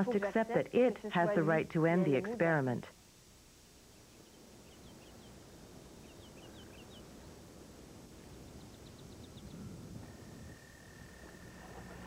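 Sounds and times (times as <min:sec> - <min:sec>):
outdoor hush: 0:00.0 - 0:12.0
faint bird chirps: 0:03.9 - 0:07.3, 0:08.2 - 0:12.0.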